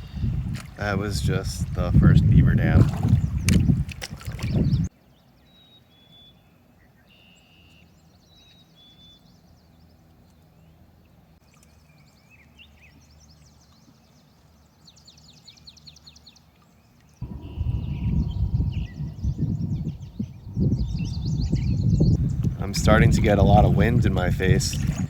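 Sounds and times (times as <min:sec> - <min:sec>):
small birds chirping: 0:00.0 - 0:01.4, 0:03.0 - 0:10.8, 0:11.4 - 0:23.6
faint low rumble: 0:17.2 - 0:25.0.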